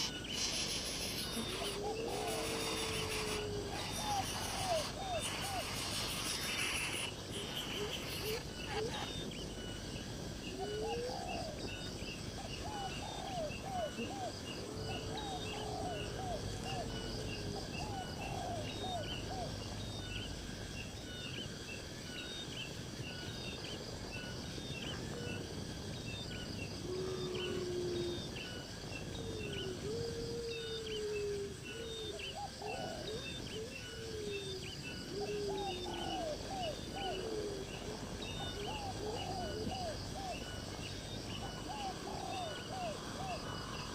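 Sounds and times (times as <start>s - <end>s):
birds calling in sliding notes: 0.0s - 14.0s
insects chirping: 0.0s - 43.9s.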